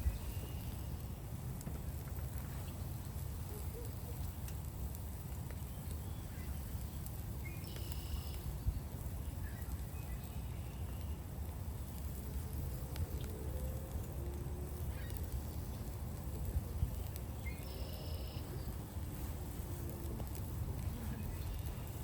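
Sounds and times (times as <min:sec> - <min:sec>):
steady low rumble: 0:00.0 - 0:22.0
small ticks: 0:03.5 - 0:22.0
faint bird chirps: 0:07.4 - 0:08.6, 0:16.9 - 0:18.8.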